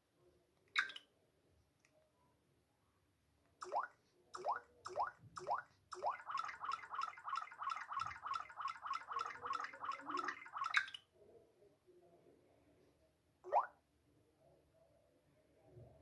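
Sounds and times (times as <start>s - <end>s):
synthetic water-drop blips: 0.8s - 1.0s, 3.6s - 11.0s, 13.5s - 13.7s.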